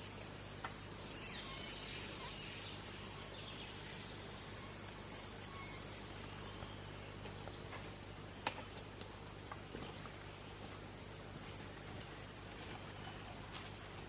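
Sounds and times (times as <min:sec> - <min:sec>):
high-pitched insect trilling: 0:00.0 - 0:07.1.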